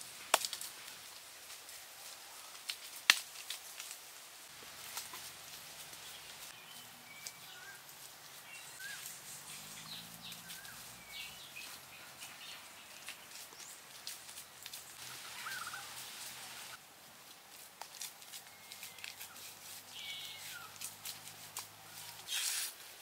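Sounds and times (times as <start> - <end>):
faint hiss: 0.0 - 23.0
bird chirping: 5.9 - 16.8, 18.4 - 20.8
hands smoothing wet mud: 18.3 - 23.0.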